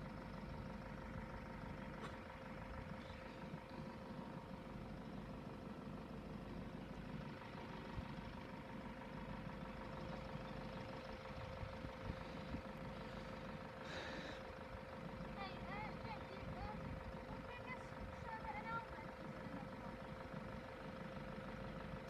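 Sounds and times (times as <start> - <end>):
vehicles idling: 0.0 - 22.0.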